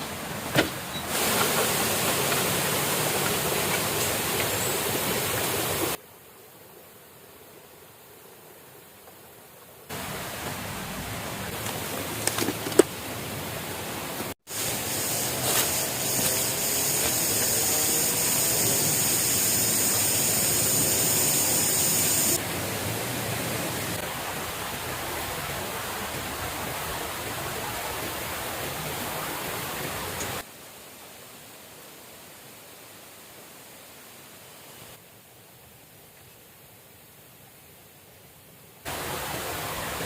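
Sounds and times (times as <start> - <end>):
high hiss: 0.8 - 6.9, 14.5 - 22.5.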